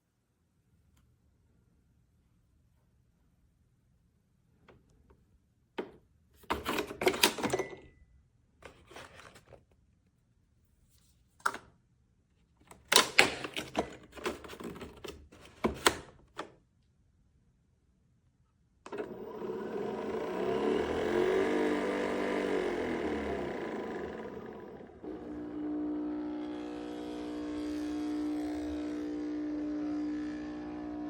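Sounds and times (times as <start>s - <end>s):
plastic and metal parts clattering: 6.4s - 7.8s, 8.6s - 9.6s, 12.7s - 16.4s.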